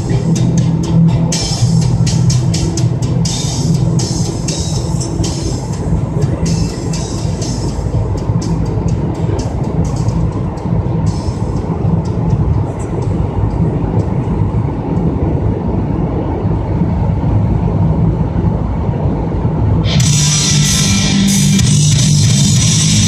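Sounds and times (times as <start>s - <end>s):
car engine running: 0.0s - 23.0s
tyre and road noise: 0.0s - 23.0s.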